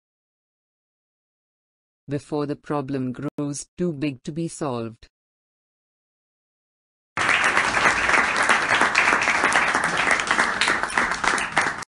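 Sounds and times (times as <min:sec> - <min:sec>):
crowd applause: 0:07.2 - 0:11.9.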